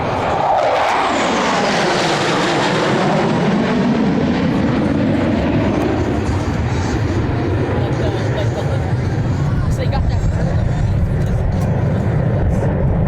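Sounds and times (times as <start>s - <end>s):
airplane engine flying past: 0.0s - 13.0s.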